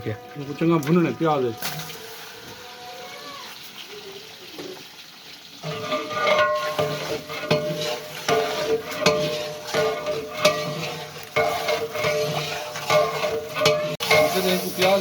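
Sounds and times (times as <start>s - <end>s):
chicken sizzling in a pot: 0.0s - 15.0s
metal ladle scraping a pot: 5.6s - 15.0s.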